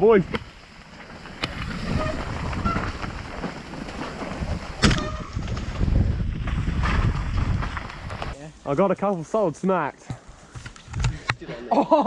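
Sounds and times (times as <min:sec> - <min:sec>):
bike rattling over rough ground: 0:00.0 - 0:11.2
wind buffeting microphone: 0:01.2 - 0:08.4.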